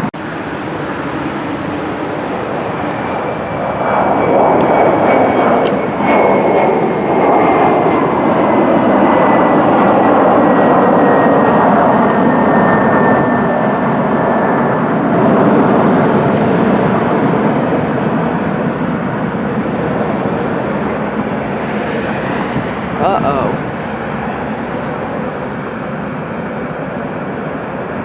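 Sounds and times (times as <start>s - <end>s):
jet engines passing with high whine: 0.0s - 28.0s.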